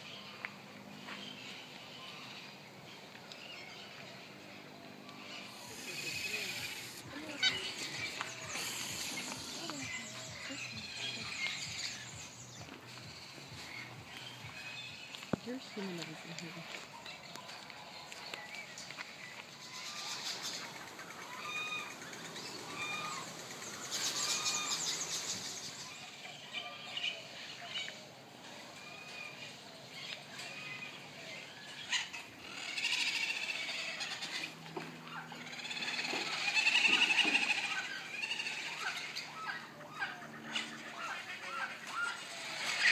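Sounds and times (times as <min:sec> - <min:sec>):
animal squealing calls: 0:05.1 - 0:12.4, 0:19.6 - 0:27.8, 0:28.8 - 0:42.9
animal chirps: 0:05.2 - 0:12.7, 0:19.6 - 0:27.0, 0:31.6 - 0:40.2.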